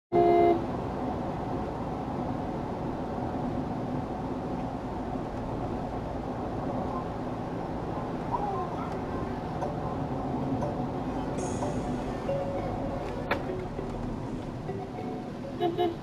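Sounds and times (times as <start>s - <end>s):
car driving road noise: 0.1s - 16.0s
steady tones: 9.0s - 16.0s.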